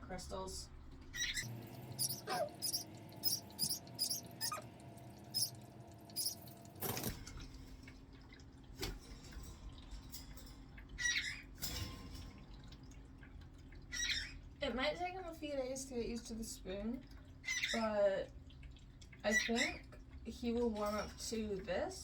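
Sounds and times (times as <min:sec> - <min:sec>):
parrots chirping: 0:01.1 - 0:06.6.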